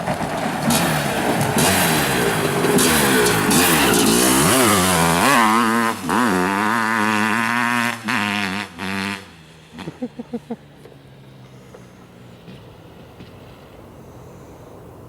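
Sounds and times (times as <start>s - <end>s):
two-stroke engine revving: 0.0s - 14.5s.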